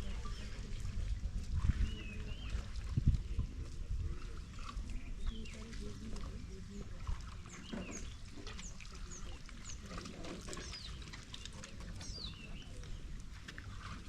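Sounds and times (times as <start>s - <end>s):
small birds chirping: 4.4s - 13.3s.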